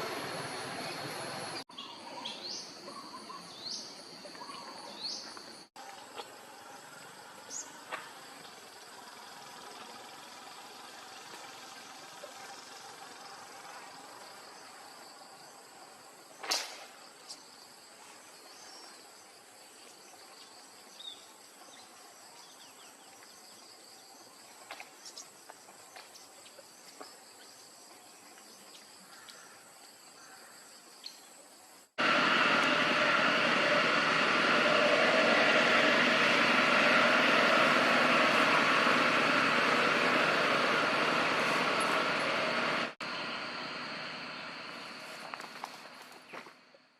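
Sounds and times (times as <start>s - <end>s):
high insect drone: 0.0s - 46.5s
loud steady noise: 32.0s - 45.0s.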